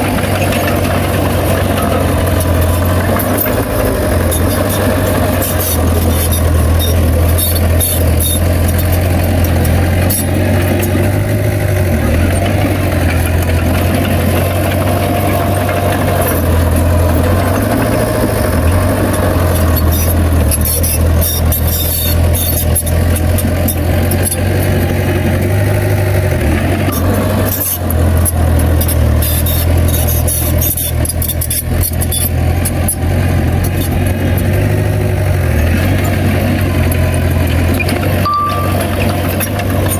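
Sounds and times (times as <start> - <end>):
diesel earthmoving machinery running: 0.0 - 39.9
metallic clicks and clanks: 35.8 - 39.9.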